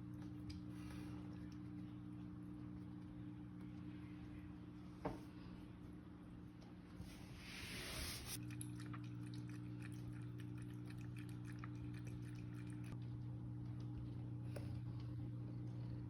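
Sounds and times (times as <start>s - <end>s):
steady low hum: 0.0s - 16.0s
cat lapping water: 8.4s - 16.0s.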